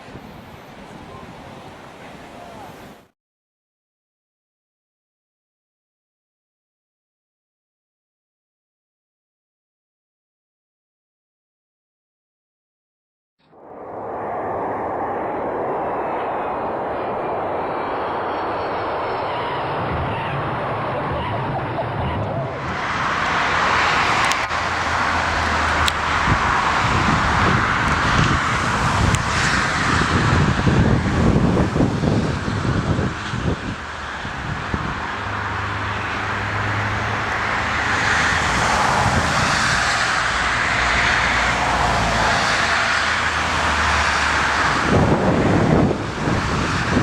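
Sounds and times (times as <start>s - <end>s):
airliner engines rumbling: 0.0s - 3.1s, 13.4s - 47.0s
wind buffeting microphone: 0.0s - 3.1s, 13.6s - 47.0s.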